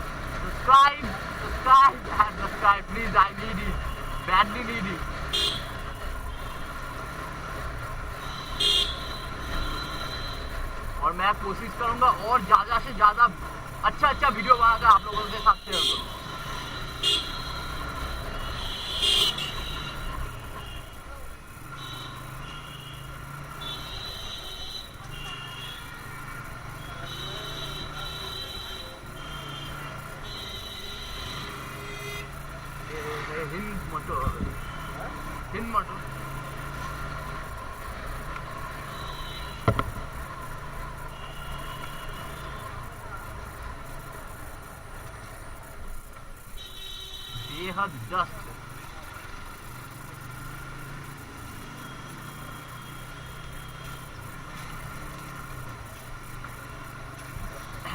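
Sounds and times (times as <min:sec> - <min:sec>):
motorcycle engine running: 0:00.0 - 0:46.5, 0:48.0 - 0:57.9
wind and road noise: 0:00.0 - 0:46.7, 0:47.3 - 0:57.9
sharp knock: 0:39.6 - 0:40.0.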